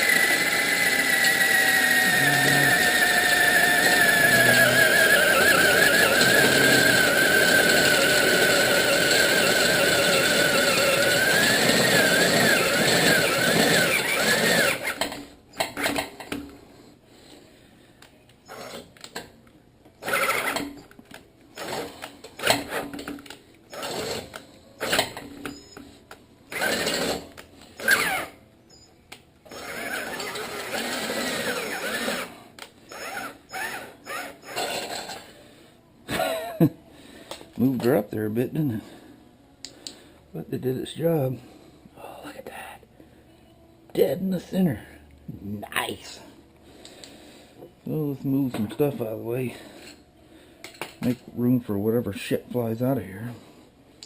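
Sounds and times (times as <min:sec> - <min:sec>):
electric drill boring through steel: 0:00.0 - 0:15.9, 0:23.7 - 0:25.2, 0:26.5 - 0:27.2, 0:27.8 - 0:28.4, 0:29.5 - 0:32.3.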